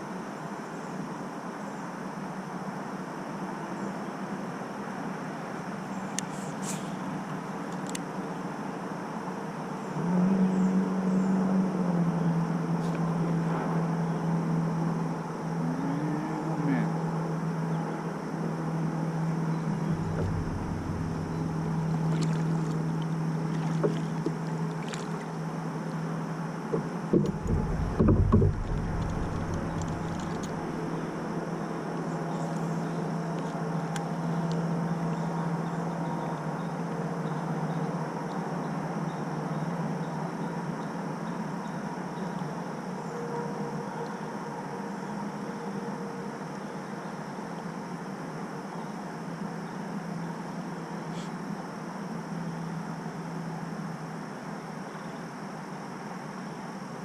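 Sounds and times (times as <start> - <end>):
steady low hum: 9.4 - 36.8
heavy knocks: 19.8 - 22.4, 27.1 - 30.8.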